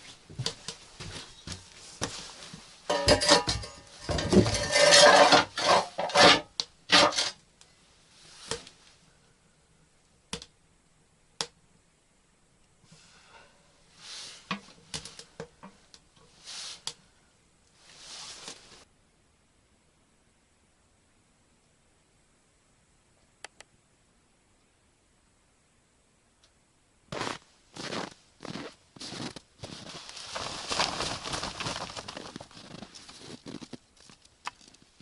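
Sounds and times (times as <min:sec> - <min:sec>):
dishes and utensils clattering: 0:02.9 - 0:07.4
soft rustling swishes: 0:17.8 - 0:18.9, 0:27.2 - 0:33.8
sharp clicks: 0:23.3 - 0:23.7.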